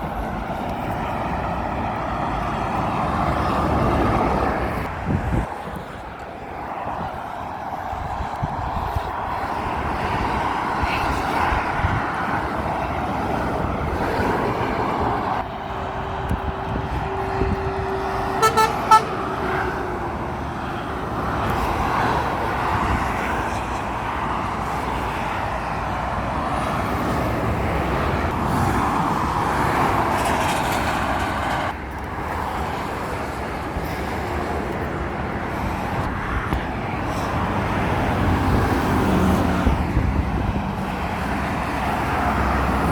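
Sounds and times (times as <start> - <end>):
road traffic passing: 0.0 - 42.9
vehicle horn toots: 17.4 - 19.3.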